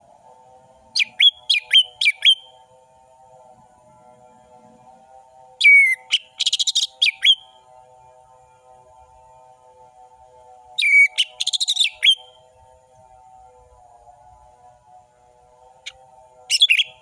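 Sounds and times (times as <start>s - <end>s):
faint steady hum: 0.0s - 17.0s
bird whistling song with trill: 1.0s - 2.5s, 5.6s - 7.6s, 10.8s - 12.4s, 16.5s - 17.0s.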